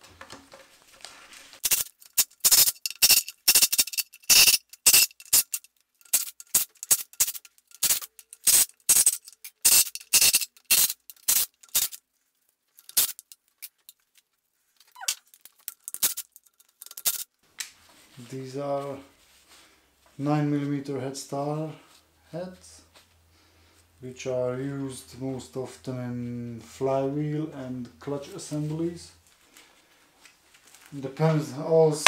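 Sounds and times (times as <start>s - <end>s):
ratchet wrench clicking: 1.6s - 12.0s, 12.8s - 13.8s, 15.5s - 17.2s.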